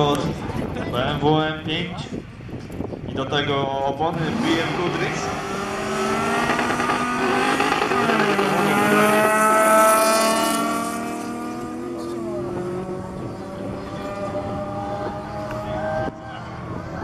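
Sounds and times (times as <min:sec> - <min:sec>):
race car engines accelerating: 0:03.9 - 0:17.0.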